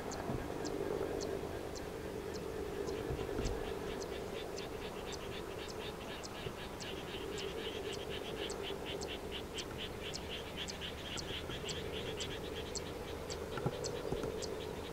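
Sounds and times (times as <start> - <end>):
low steady hum: 0.0 - 14.9.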